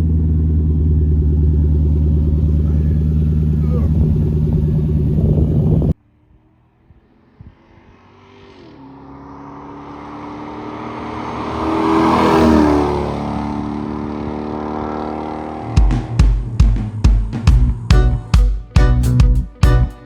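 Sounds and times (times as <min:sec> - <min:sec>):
car exhaust passing by: 0:00.0 - 0:18.2
drum beats: 0:15.7 - 0:20.0.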